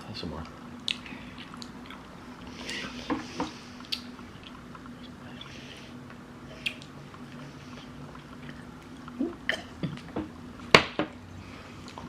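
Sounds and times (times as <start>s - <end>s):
faint low hum: 0.0s - 12.0s
people chewing: 0.4s - 10.6s, 11.4s - 12.0s
lip smacks: 3.8s - 5.2s, 6.0s - 7.0s.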